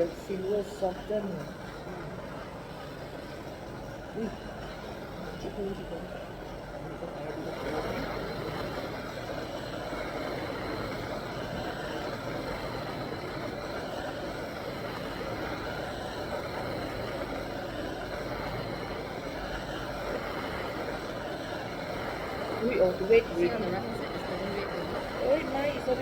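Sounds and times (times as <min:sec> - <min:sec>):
gas torch flame hissing: 0:00.0 - 0:26.0.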